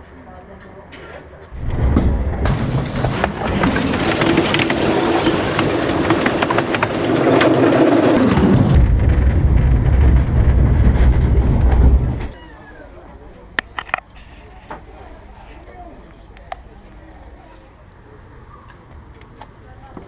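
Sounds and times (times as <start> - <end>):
train wheels clattering: 1.8 - 8.8.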